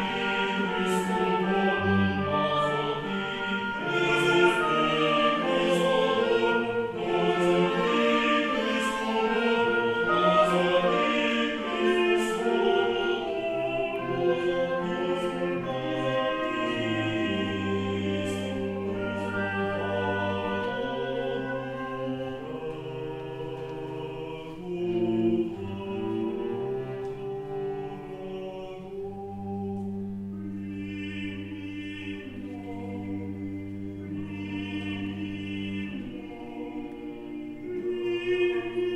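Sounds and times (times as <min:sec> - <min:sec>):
choir singing: 0:00.0 - 0:38.9.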